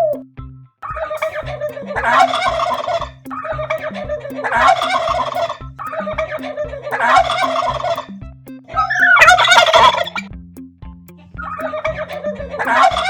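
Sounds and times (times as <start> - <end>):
poultry rattling calls: 0.8 - 8.1, 8.8 - 10.3, 11.4 - 13.0.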